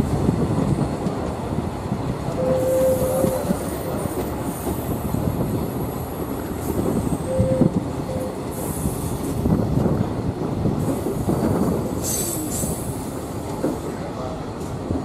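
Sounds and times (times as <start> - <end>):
train wheels rumbling on track: 0.0 - 15.0
train wheels squealing: 2.4 - 4.7, 12.0 - 13.0.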